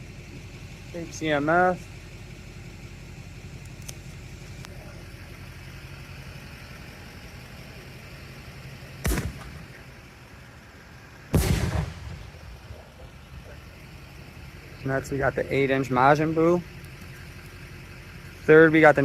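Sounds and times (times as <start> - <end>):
bang with rolling tail: 9.0 - 9.7, 11.3 - 12.7
firework booms: 9.0 - 9.7, 11.3 - 12.7
sharp thump: 9.0 - 9.7, 11.3 - 12.3.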